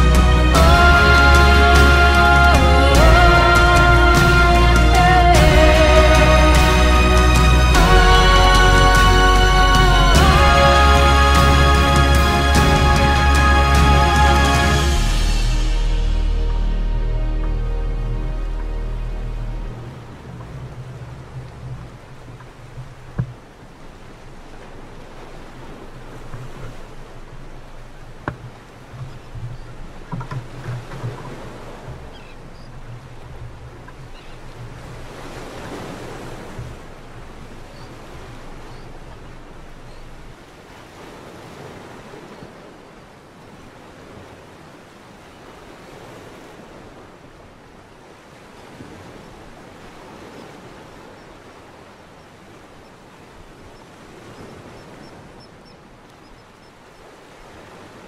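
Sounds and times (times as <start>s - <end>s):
low hum: 0.0s - 35.2s
sea water rushing against boat: 0.0s - 58.0s
knocks: 28.2s - 31.3s.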